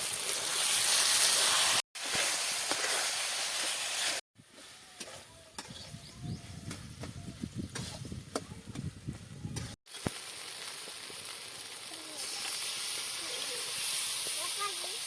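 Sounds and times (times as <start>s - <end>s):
food frying and crackling: 0.0s - 4.2s, 9.8s - 15.0s
sizzling hiss: 0.0s - 4.8s, 9.9s - 15.0s.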